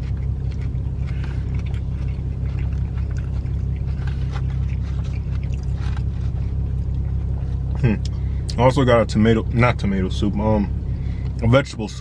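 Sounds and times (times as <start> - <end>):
eating clicks and rustles: 0.0 - 7.9
car cabin rumble: 0.0 - 12.0.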